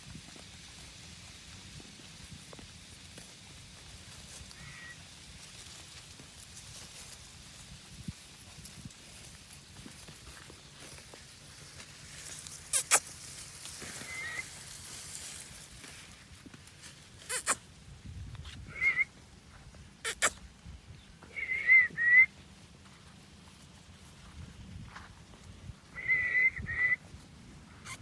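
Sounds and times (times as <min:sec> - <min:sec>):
parrot whistling calls: 0:14.0 - 0:14.5, 0:17.3 - 0:17.6, 0:18.7 - 0:19.1, 0:21.3 - 0:22.3, 0:26.0 - 0:27.0.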